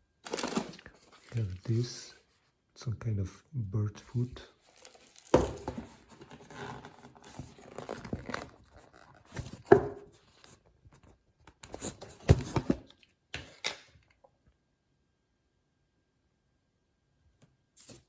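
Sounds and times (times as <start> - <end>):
packaging rustling and tearing: 0.2 - 2.0, 4.6 - 9.7.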